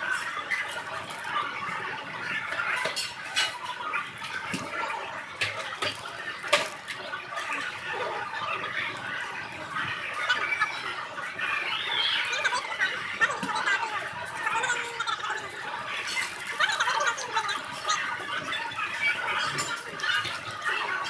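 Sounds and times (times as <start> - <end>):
restaurant hubbub: 0.0 - 21.0
dishes and cutlery clinking: 2.5 - 7.8, 15.9 - 21.0.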